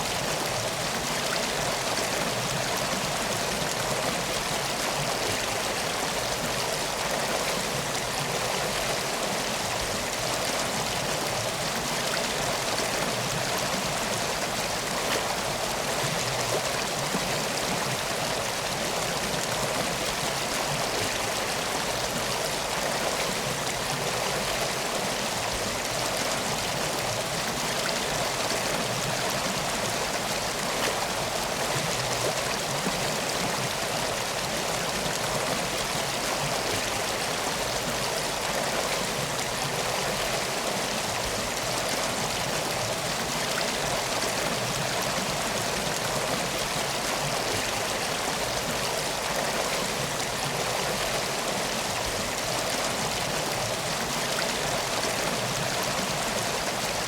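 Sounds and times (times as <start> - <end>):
river flowing: 0.0 - 57.0.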